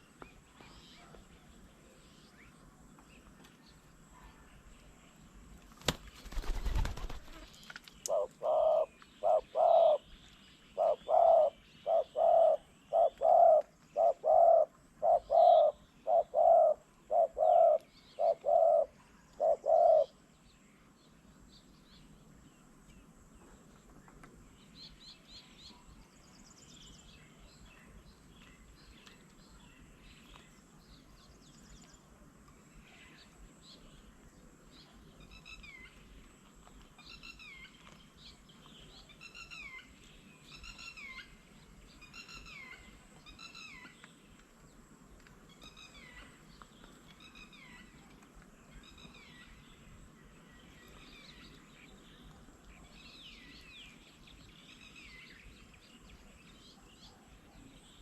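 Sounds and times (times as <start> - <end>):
bird hooting: 8.1 - 10.0, 10.8 - 20.1.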